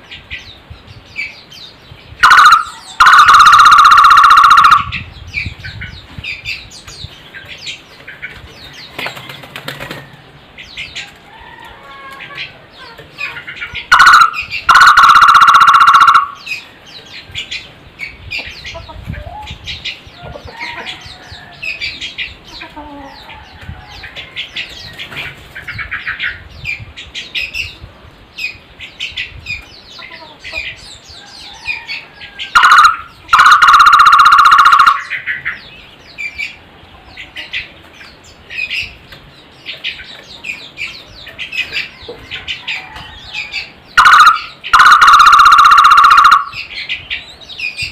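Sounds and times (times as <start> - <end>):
barbet trilling calls: 2.2 - 5.1, 13.3 - 16.6, 32.5 - 35.5, 43.6 - 46.8.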